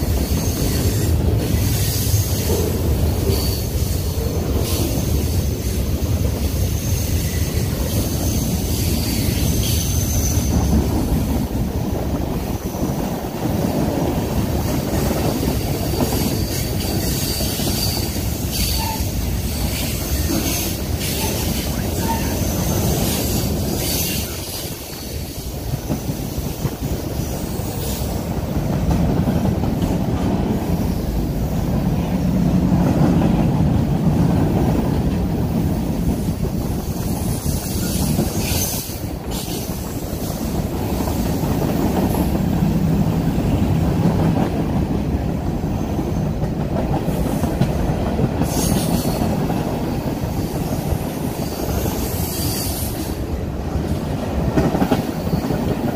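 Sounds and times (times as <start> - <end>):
train wheels rumbling on rail: 0.0 - 55.9
high wheel screeches: 3.2 - 6.0, 6.6 - 10.8, 15.8 - 25.6, 50.4 - 53.2.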